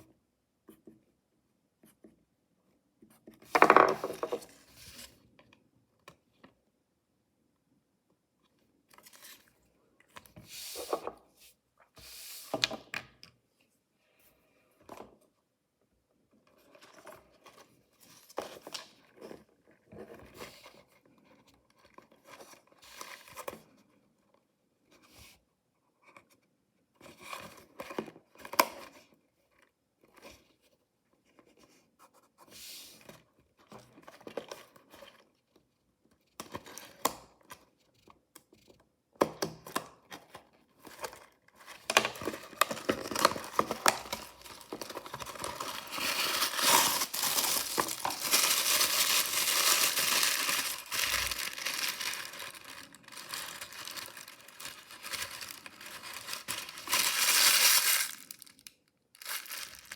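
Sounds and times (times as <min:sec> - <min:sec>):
packaging torn and crinkled: 0:41.9 - 0:59.9.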